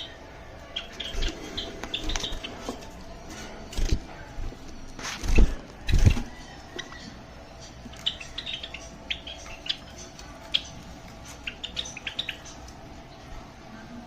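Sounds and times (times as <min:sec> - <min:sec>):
sparrows chirping: 0:00.0 - 0:02.8, 0:06.4 - 0:13.4
faint steady hum: 0:00.0 - 0:14.0.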